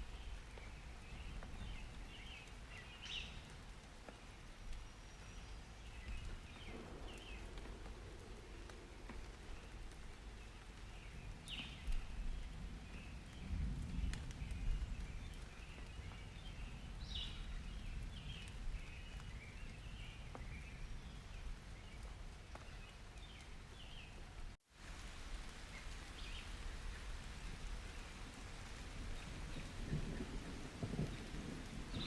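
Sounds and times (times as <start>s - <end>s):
steady rain: 0.0s - 32.0s
distant thunder rumble: 5.9s - 21.6s, 26.1s - 32.0s.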